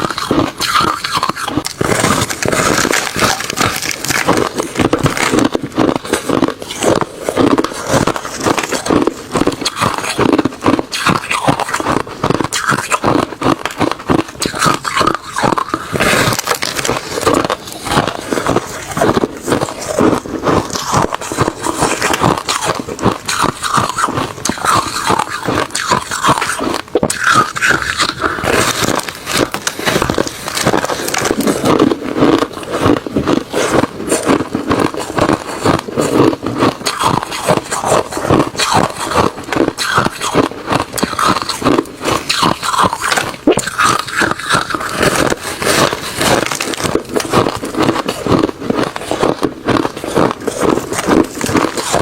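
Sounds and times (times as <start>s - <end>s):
person chewing crushed ice: 0.0s - 52.0s.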